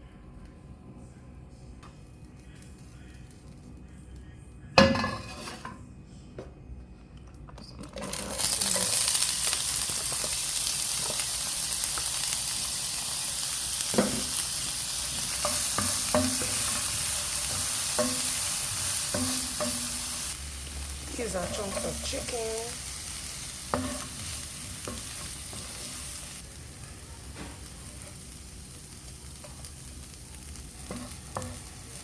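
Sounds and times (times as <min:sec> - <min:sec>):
chicken sizzling in hot oil: 0:08.0 - 0:32.0.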